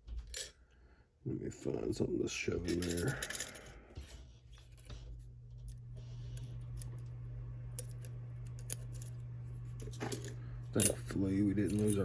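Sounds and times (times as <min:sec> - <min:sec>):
steady low hum: 0:00.3 - 0:12.0.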